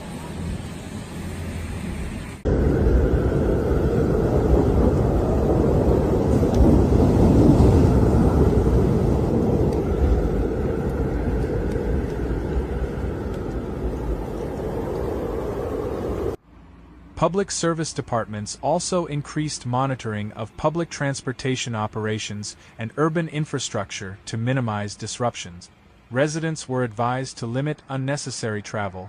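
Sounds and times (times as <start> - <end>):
blizzard wind roaring: 0.0 - 16.4.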